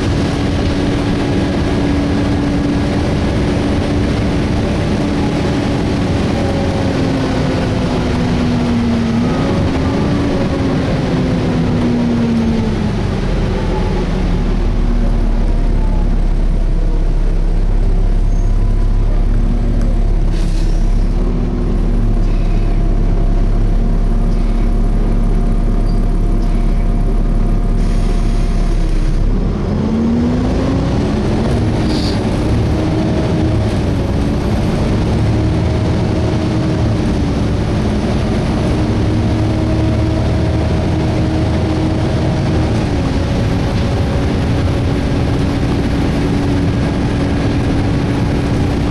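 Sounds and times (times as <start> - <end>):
bus diesel engine: 0.0 - 48.9
engine cooling fan: 0.0 - 48.9.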